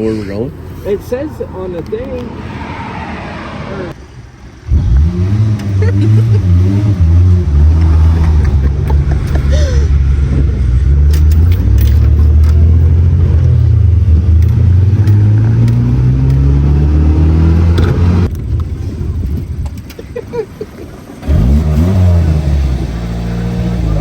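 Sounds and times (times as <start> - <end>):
small truck engine running: 4.0 - 24.0.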